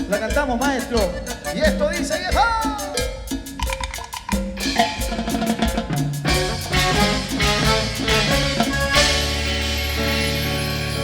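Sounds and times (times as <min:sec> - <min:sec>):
drum kit beating: 0:00.0 - 0:11.0
live band playing: 0:04.6 - 0:11.0
steady bass: 0:06.2 - 0:11.0.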